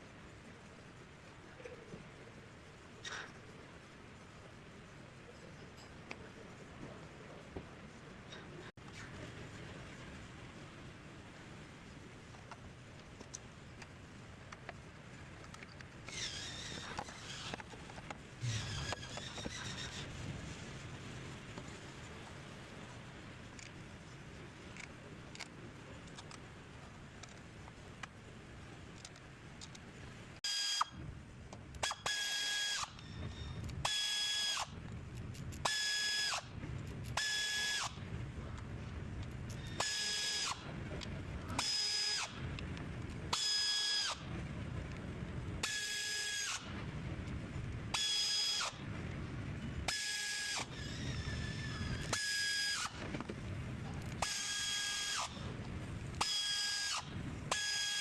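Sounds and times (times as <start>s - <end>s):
power tool whining in bursts: 54.2s - 55.3s, 56.2s - 58.0s.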